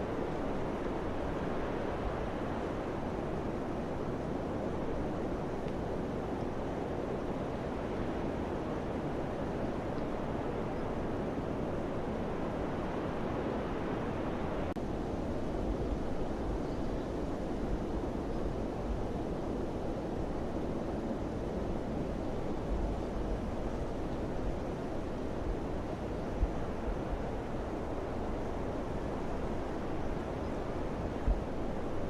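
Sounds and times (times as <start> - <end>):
rushing wind: 0.0 - 32.0.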